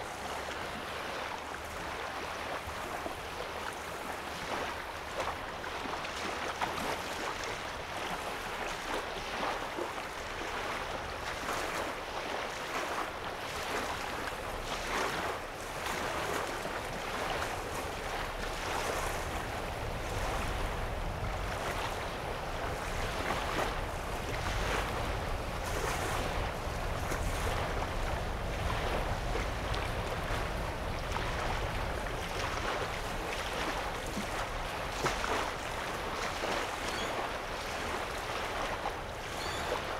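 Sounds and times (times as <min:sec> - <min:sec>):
small waves lapping on shore: 0:00.0 - 0:39.9
low rumble: 0:19.0 - 0:33.9.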